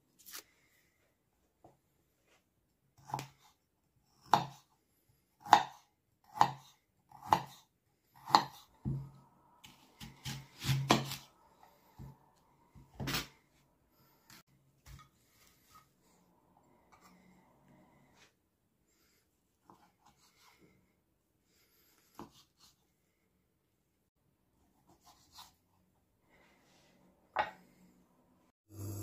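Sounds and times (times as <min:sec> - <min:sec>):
knife chopping on cutting board: 0:03.0 - 0:03.5, 0:04.2 - 0:04.6, 0:05.4 - 0:07.6, 0:08.2 - 0:11.3.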